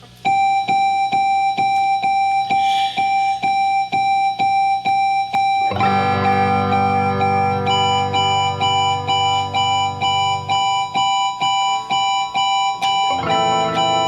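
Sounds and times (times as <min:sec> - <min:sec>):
keyboard repeating single note: 0:00.6 - 0:14.0
keyboard chord with bass notes: 0:05.7 - 0:10.9, 0:13.1 - 0:14.0.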